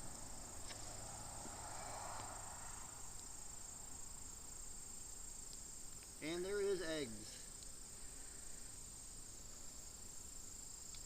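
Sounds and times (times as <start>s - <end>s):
honeybees humming: 0.0s - 10.8s.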